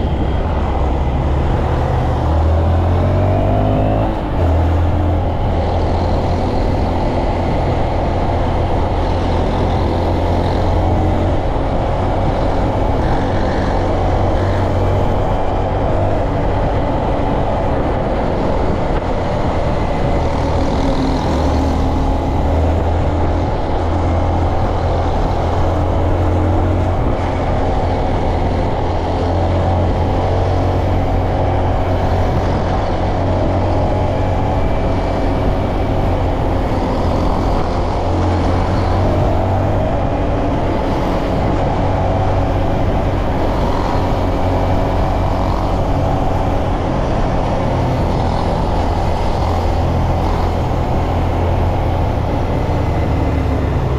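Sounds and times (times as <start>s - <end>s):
motorcycle engine running: 0.0s - 53.9s
rush of noise: 0.0s - 53.9s.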